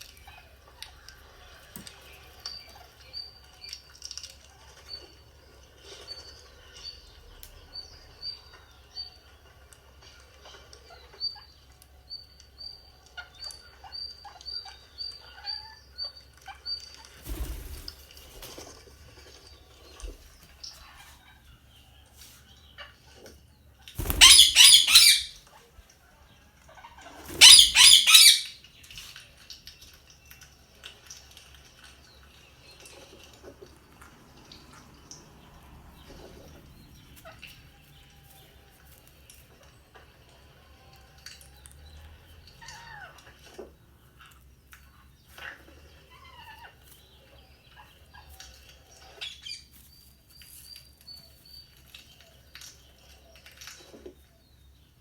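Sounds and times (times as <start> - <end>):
parakeet chirping: 24.0 - 25.4, 27.3 - 28.6
parakeet harsh squawks: 24.0 - 25.4, 27.3 - 28.6.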